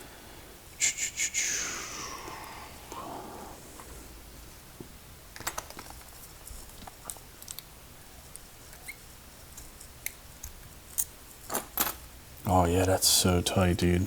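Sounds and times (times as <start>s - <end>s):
small clicks of padlock parts: 6.8s - 7.7s, 8.3s - 12.0s.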